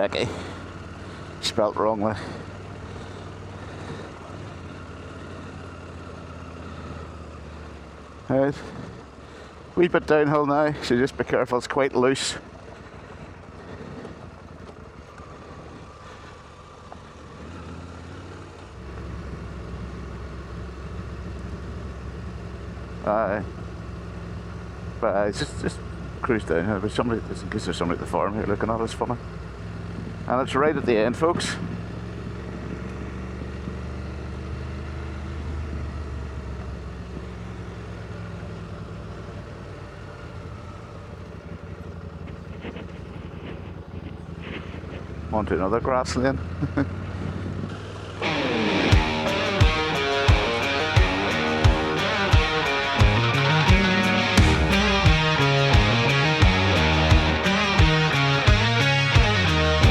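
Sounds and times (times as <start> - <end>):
motorcycle engine at low revs: 0.0 - 59.9.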